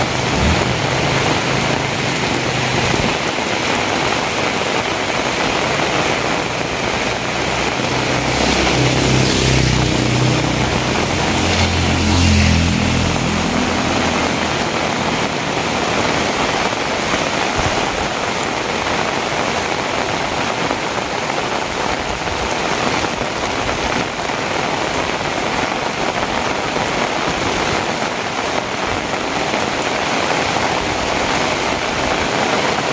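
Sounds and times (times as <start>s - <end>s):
vehicle engine humming: 0.0s - 18.0s
heavy rain falling: 0.0s - 32.9s.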